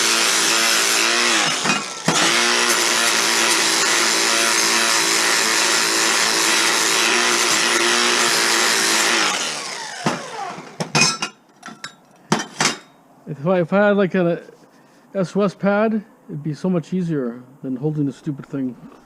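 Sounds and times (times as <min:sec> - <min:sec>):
electric grinder on metal: 0:00.0 - 0:10.9.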